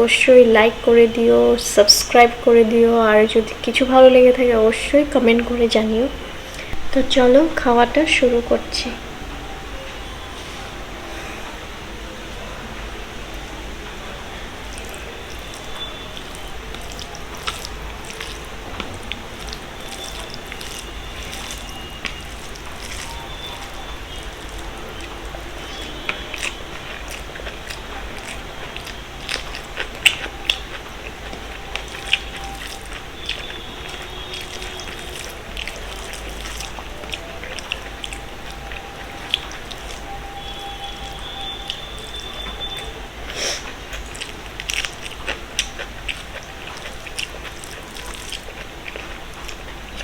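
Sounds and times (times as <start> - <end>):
person chewing food: 5.4 - 6.9, 14.4 - 50.0
crisp clicks and crunches: 14.6 - 50.0
steady hiss: 42.9 - 44.5.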